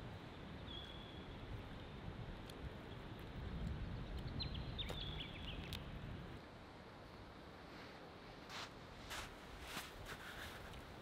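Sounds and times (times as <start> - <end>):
bird chirping: 0.6 - 1.4, 4.0 - 5.9.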